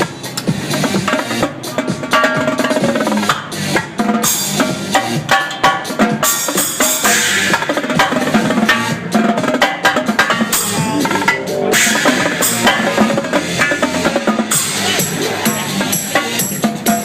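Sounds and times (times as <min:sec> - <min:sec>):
drum kit played fast: 0:00.0 - 0:17.0
electronic dance music: 0:10.2 - 0:17.0.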